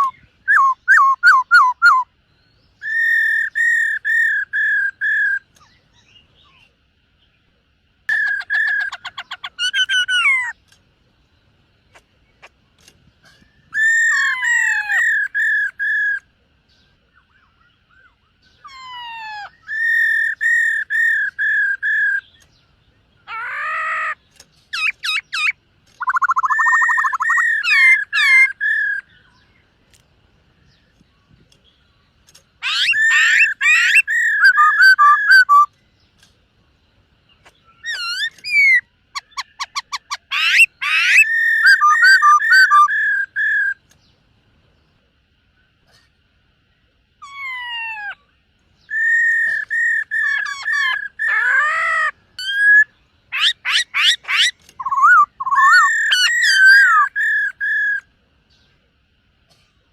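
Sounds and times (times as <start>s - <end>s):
bird singing whistled phrases: 0.0s - 2.2s, 2.8s - 6.7s, 23.3s - 29.5s, 32.6s - 35.7s, 37.7s - 43.8s, 48.8s - 58.1s.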